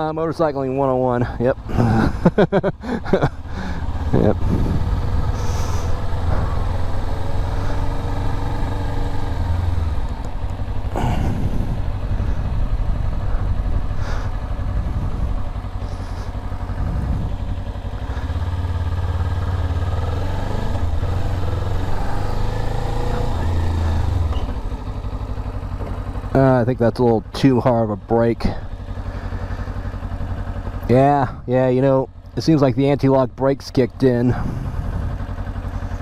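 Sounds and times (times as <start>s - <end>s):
motorcycle engine rumble: 0.0s - 36.0s
wind on microphone: 11.0s - 15.5s, 16.7s - 17.5s.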